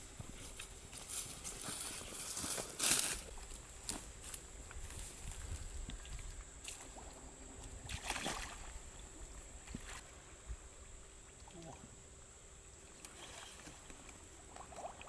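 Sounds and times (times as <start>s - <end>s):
short water splashes: 6.0s - 10.0s
water sloshing: 6.8s - 10.0s.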